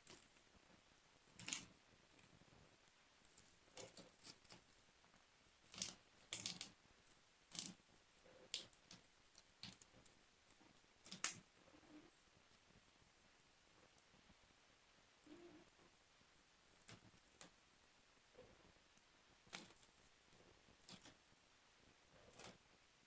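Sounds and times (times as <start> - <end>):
slime kneaded with sticky clicks: 5.6 - 6.8, 8.5 - 11.4, 20.8 - 21.2.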